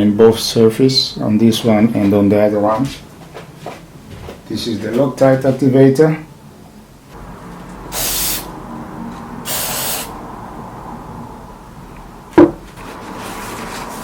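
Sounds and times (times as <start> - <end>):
aerosol can spraying: 7.9 - 8.5, 9.4 - 10.2
sharp knock: 12.4 - 12.6.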